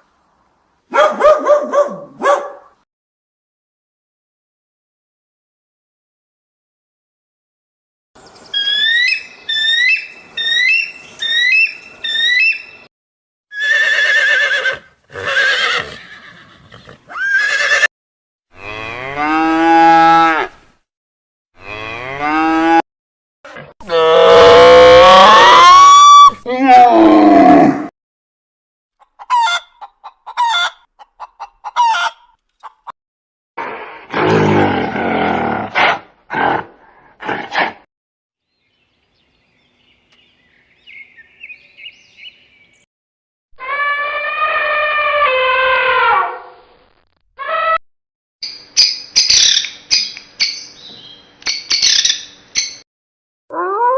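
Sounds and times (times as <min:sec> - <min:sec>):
faint high bird chirps: 0:08.2 - 0:12.9, 0:38.4 - 0:42.9, 0:48.4 - 0:52.8
loud harsh animal calls: 0:43.6 - 0:46.4.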